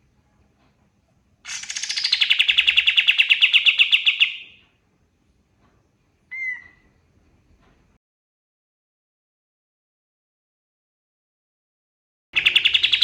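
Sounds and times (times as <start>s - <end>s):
songbird rattling trill: 1.5s - 4.6s, 12.4s - 13.0s
songbird short call: 6.3s - 6.9s.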